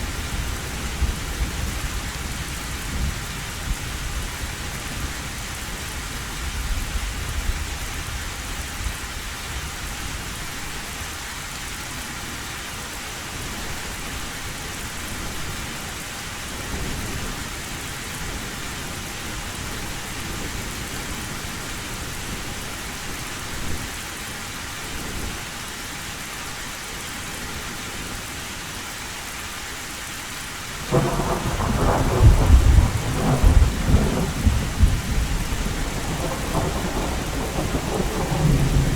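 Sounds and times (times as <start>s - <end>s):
heavy rain on a tin roof: 0.0s - 38.9s
thunder rumbling: 30.8s - 38.9s
loud peal of thunder: 30.9s - 38.9s.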